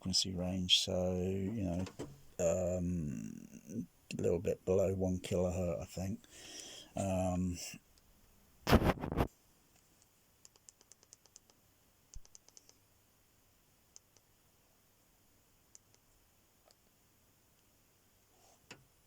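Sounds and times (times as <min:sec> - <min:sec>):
faint sharp clicks: 0:09.8 - 0:12.8, 0:15.7 - 0:16.0.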